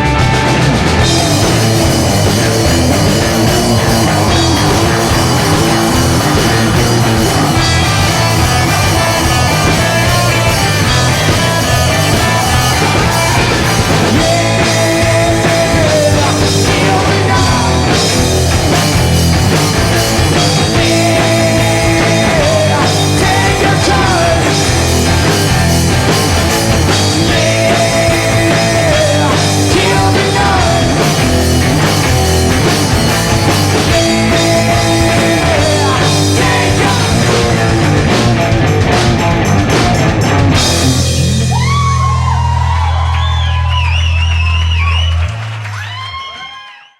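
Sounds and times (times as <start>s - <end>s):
drum kit: 0.0s - 46.0s
bass guitar: 0.0s - 46.2s
electric guitar: 0.0s - 46.5s
person singing: 2.4s - 18.3s, 20.3s - 25.8s, 26.9s - 32.5s, 33.7s - 37.8s.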